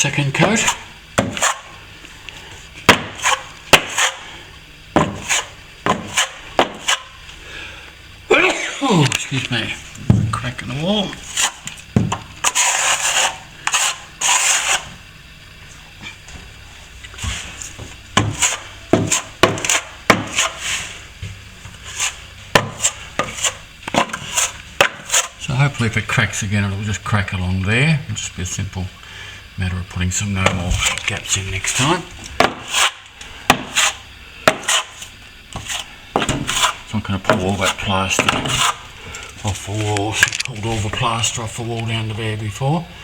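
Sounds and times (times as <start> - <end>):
plastering knife scraping: 0.4 - 1.8, 2.9 - 4.3, 5.0 - 7.2, 11.1 - 15.0, 17.1 - 21.0, 21.6 - 25.5, 30.4 - 40.0.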